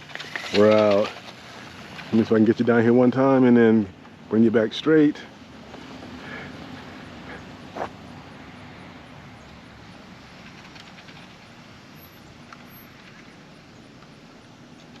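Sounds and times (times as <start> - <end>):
rc motorcycle running: 0.0 - 2.6.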